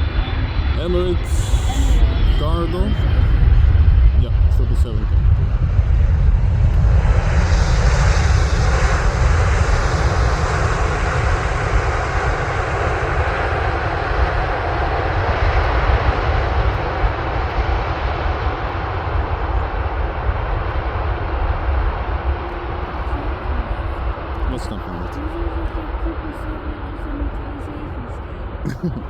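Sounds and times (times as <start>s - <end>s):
jet aircraft roar: 0.0s - 29.0s.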